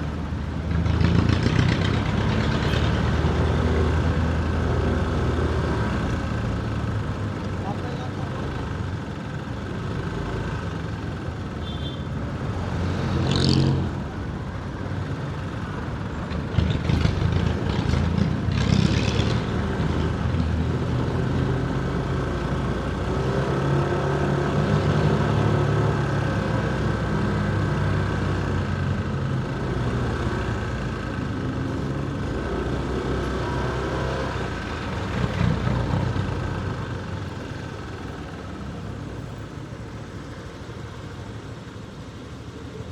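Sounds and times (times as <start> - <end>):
rough clattering engine: 0.0 - 10.2, 15.3 - 24.2, 24.8 - 42.9.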